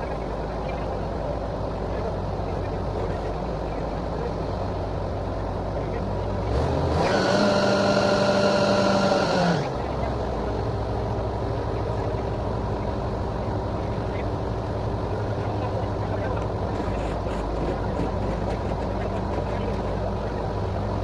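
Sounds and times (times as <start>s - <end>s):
drilling rig engine running: 6.6s - 11.0s.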